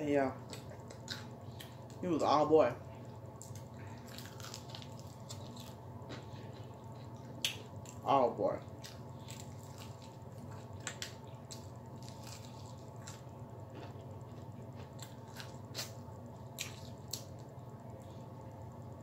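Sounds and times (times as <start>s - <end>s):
steady low hum: 0.0s - 19.0s
wet chewing and smacking: 3.4s - 8.0s, 8.7s - 17.5s.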